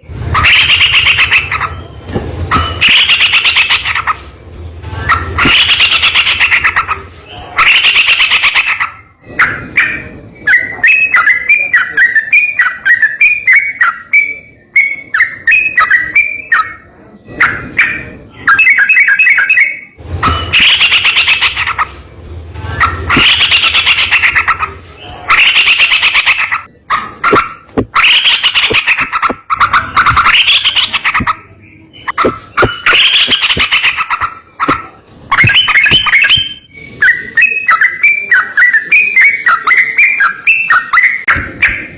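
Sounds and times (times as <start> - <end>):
bird harsh chattering song: 0.0 - 4.3, 5.1 - 22.0, 22.7 - 41.9
soft bubbling bird phrases: 0.4 - 1.8, 22.8 - 41.9.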